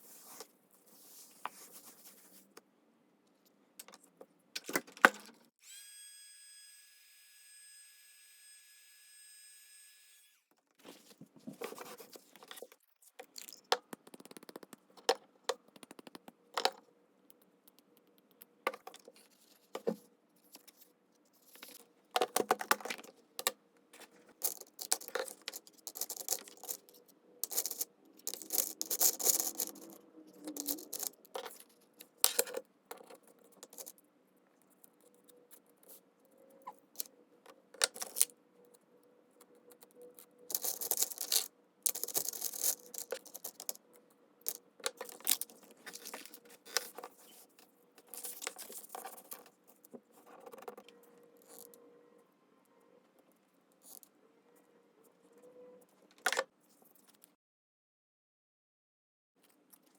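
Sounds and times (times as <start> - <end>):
paper rustling and scraping on desk: 10.8 - 12.7.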